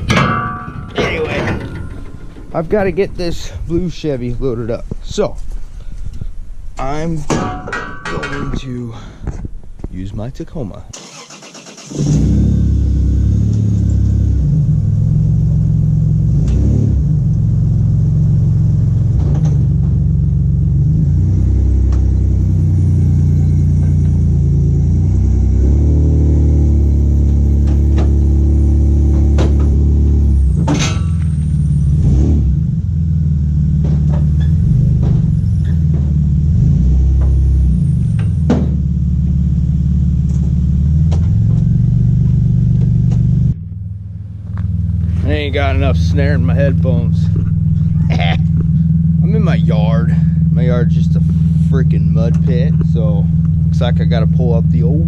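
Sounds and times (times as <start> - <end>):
metal knocks and clanks: 0.0 - 3.8, 7.2 - 9.5, 29.0 - 31.6, 33.7 - 36.4, 37.1 - 38.9
truck engine revving under load: 11.0 - 55.0.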